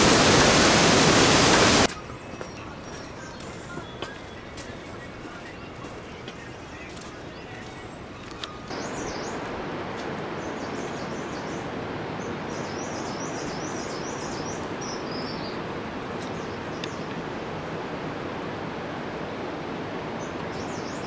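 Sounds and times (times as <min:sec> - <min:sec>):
steady rushing noise: 0:00.0 - 0:01.9.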